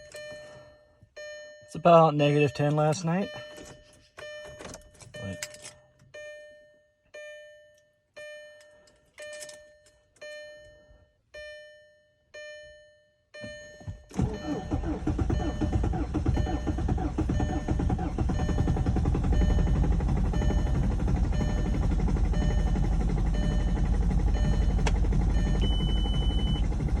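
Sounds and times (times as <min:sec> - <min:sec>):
dashboard warning chime: 0:00.0 - 0:26.8
engine starter cranking: 0:14.0 - 0:27.0
diesel engine running: 0:14.1 - 0:27.0.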